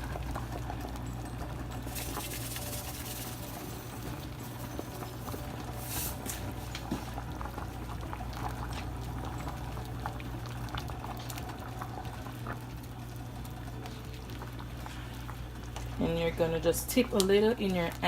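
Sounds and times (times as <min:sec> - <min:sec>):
soup boiling and bubbling: 0:00.0 - 0:18.0
steady low hum: 0:00.0 - 0:18.0.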